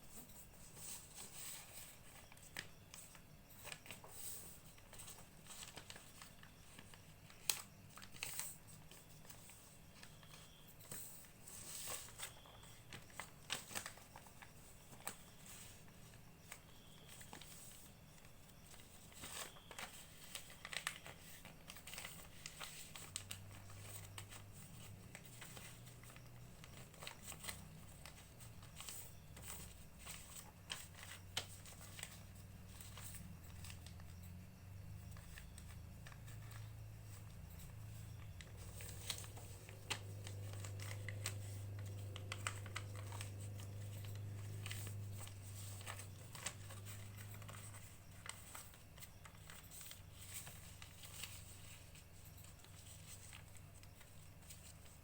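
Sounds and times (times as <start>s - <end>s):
paper rustling and crinkling: 0.0s - 55.0s
paper creasing ticks: 35.1s - 55.0s.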